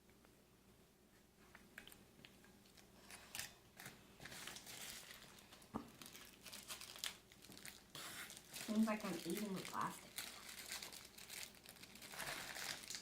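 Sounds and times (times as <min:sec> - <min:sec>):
plastic packaging crinkling: 0:02.6 - 0:13.0.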